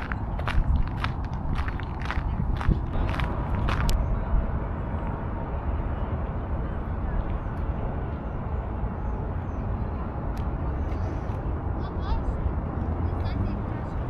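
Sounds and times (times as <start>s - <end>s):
footsteps on paved path: 0.0s - 4.2s
low outdoor rumble: 0.0s - 14.0s.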